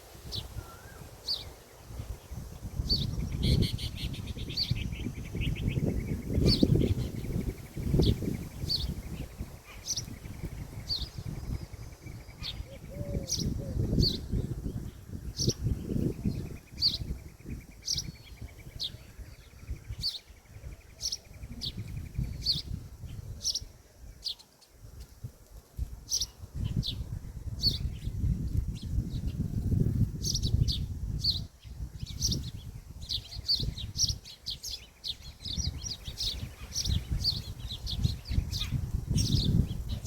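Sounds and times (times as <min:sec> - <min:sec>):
bird chirping: 0:30.2 - 0:40.0.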